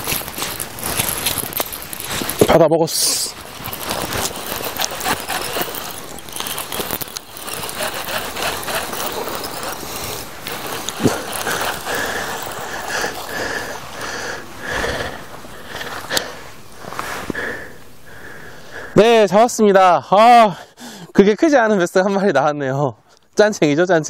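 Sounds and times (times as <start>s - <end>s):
fishing reel clicking: 3.5s - 13.5s.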